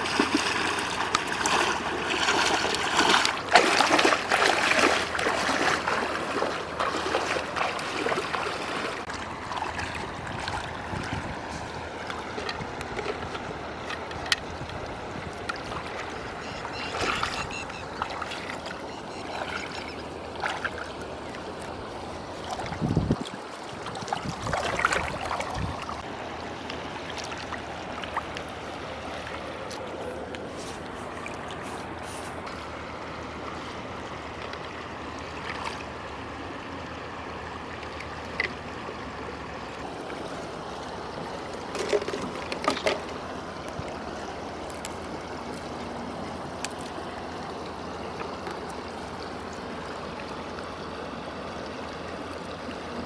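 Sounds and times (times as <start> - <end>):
sharp knocks or splashes: 0.0 - 14.8
river water rushing: 0.0 - 53.0.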